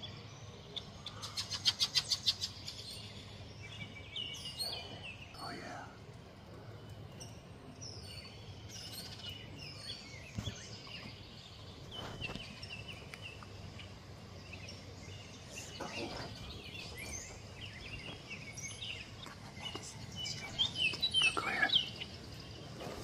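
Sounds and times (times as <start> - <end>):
low steady background hum: 0.0 - 23.0
songbirds chirping and singing: 0.0 - 23.0.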